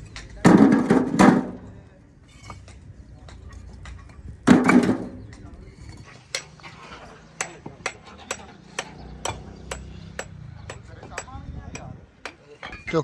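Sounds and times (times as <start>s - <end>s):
hammering: 0.5s - 1.8s, 4.5s - 5.4s, 6.3s - 13.0s.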